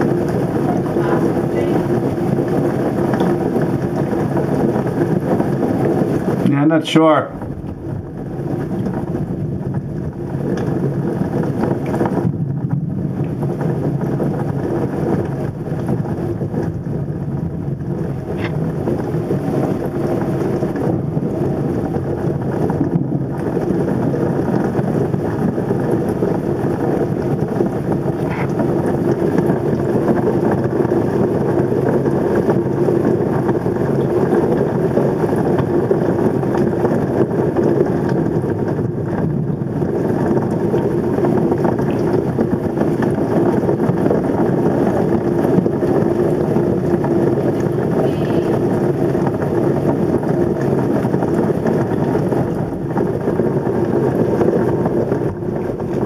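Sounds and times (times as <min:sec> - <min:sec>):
wind rushing: 0:00.0 - 0:33.8
heavy rain: 0:00.0 - 0:56.0.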